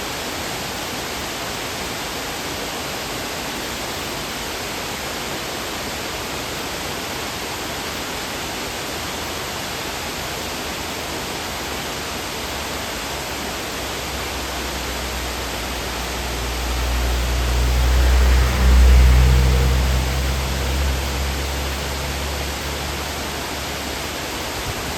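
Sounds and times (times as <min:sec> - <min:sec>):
waterfall rushing: 0:00.0 - 0:24.9
low rumble: 0:14.5 - 0:24.0.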